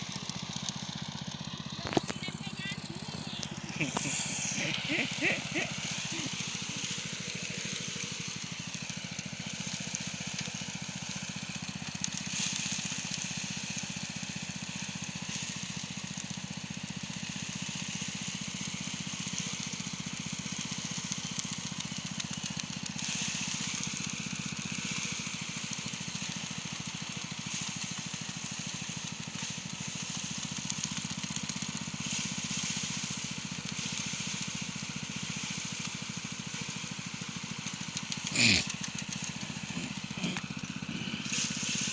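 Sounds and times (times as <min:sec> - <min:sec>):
small engine running: 0:00.0 - 0:41.9
hiss: 0:03.6 - 0:16.4, 0:17.1 - 0:41.9.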